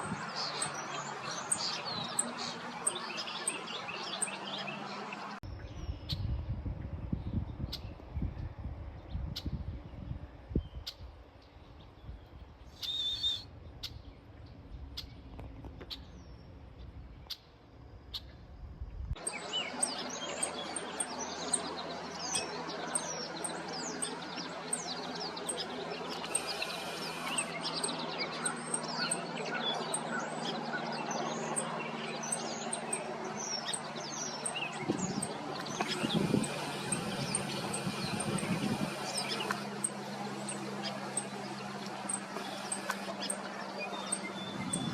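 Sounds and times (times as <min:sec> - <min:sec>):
birds chirping and calling: 0:00.0 - 0:06.3, 0:12.6 - 0:14.1, 0:19.2 - 0:44.9.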